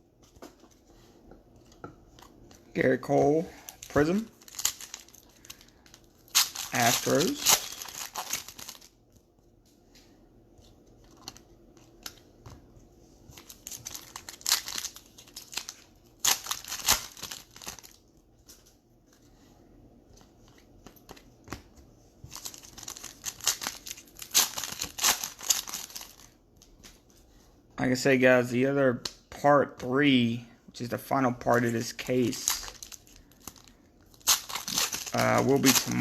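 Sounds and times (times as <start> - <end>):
foil wrappers crinkling and tearing: 3.5 - 9.0, 13.3 - 18.0, 22.2 - 27.0, 31.6 - 36.0.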